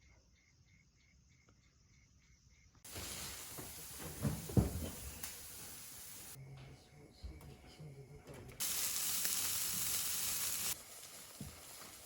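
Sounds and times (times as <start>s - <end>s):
shrimp sizzling in hot oil: 2.9s - 6.4s, 8.6s - 12.0s.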